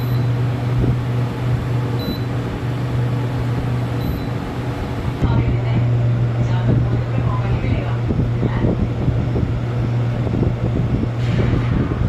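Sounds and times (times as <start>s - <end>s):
short high beeps: 0.0s - 0.4s, 2.0s - 2.3s, 4.0s - 4.3s
steady low hum: 0.0s - 12.0s
rushing noise: 11.0s - 12.0s.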